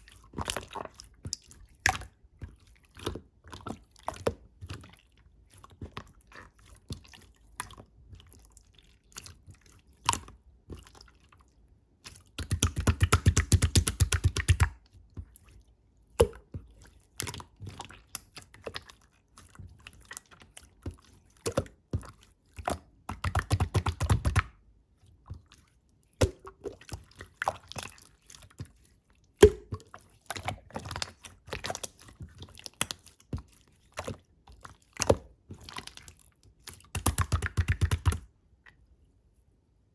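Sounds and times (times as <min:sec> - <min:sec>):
slime being squished: 0:26.2 - 0:38.3.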